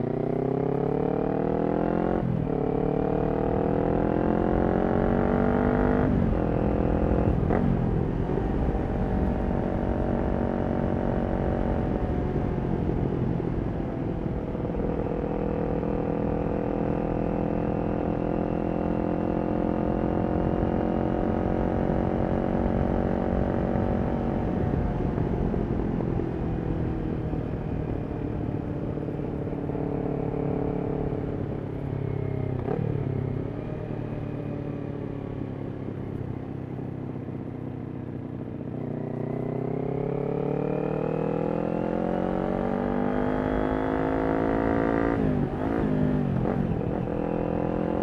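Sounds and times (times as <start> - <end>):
motorcycle engine revving: 0.0 - 12.5, 36.8 - 48.0.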